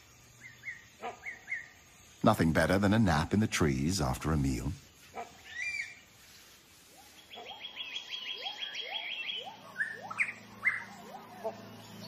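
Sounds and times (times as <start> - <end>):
forest birds chirping: 0.0 - 12.0
short rising bird calls: 5.1 - 12.0
sharp upward-sweeping bird notes: 7.1 - 12.0.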